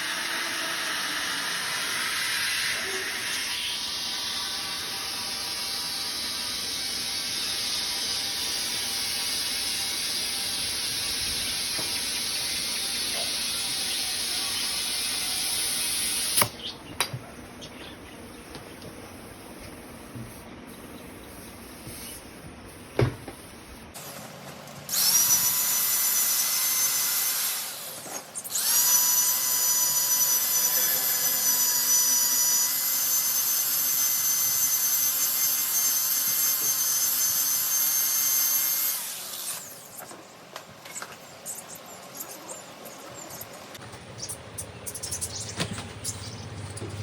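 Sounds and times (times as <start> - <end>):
power tool high whine: 0.0 - 16.5, 24.9 - 40.0.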